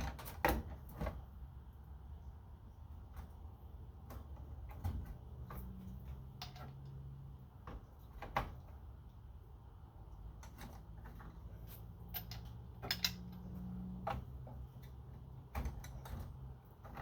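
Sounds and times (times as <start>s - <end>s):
hand tools clicking and knocking: 3.0s - 9.0s, 10.2s - 17.0s.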